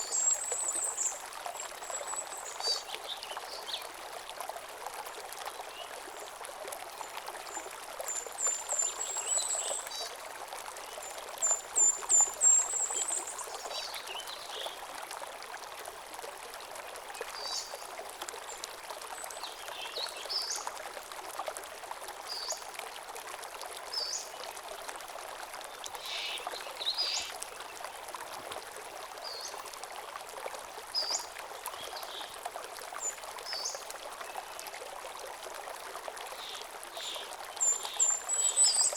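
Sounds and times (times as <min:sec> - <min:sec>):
stream running over stones: 0:00.0 - 0:38.9
songbirds singing: 0:26.0 - 0:27.3.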